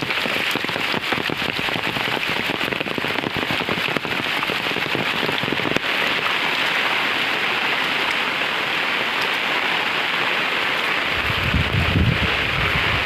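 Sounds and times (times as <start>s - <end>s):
heavy rain hissing: 0.0s - 13.0s
wind rumble on microphone: 11.0s - 13.0s.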